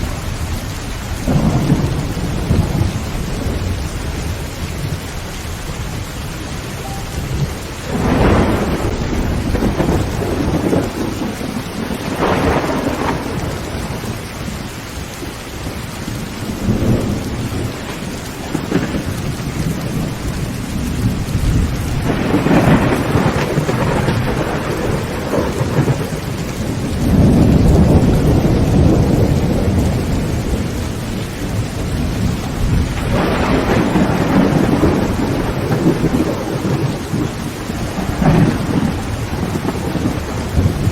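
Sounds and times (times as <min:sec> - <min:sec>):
thunder rolling: 0:00.0 - 0:14.6, 0:15.6 - 0:40.9
heavy rain on a tin roof: 0:00.0 - 0:40.9.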